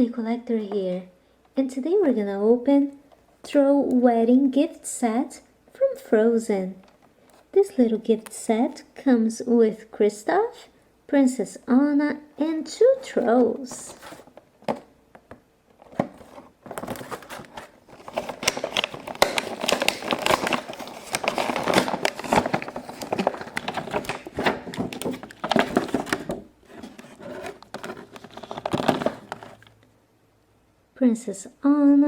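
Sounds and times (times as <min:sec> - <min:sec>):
packaging crinkling and crackling: 0:13.1 - 0:29.8.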